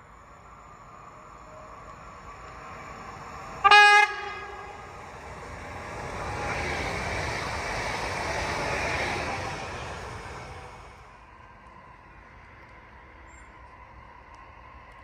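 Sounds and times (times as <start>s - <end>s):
train wheels rumbling on rails: 0.0s - 15.0s
train horn blast: 3.6s - 4.9s.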